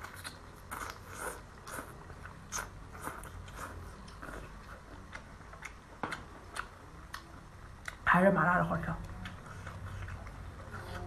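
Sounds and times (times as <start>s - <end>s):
wet chewing and mouth smacking: 0.0s - 8.0s, 9.0s - 11.0s.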